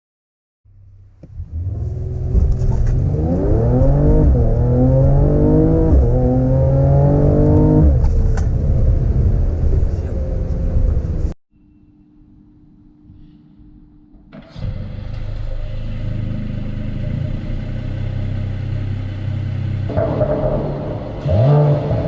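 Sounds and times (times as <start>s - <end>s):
car engine accelerating hard: 1.2s - 11.4s, 14.5s - 22.0s.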